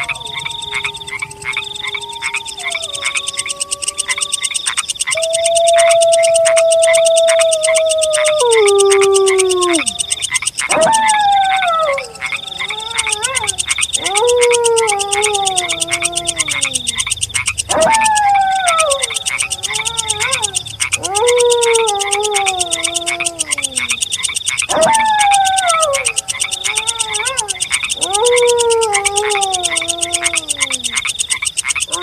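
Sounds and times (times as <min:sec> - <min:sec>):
pulsing night chorus: 0:00.0 - 0:32.0
wolf howls: 0:00.0 - 0:32.0.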